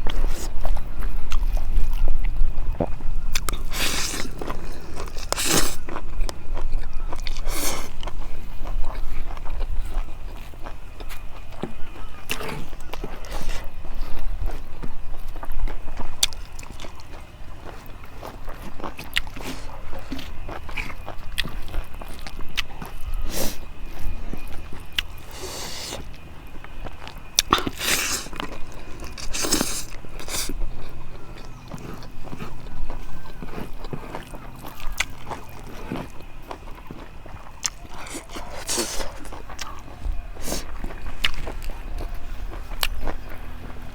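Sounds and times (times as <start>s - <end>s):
person chewing food: 0.0s - 43.9s
mouth clicks: 24.4s - 43.4s.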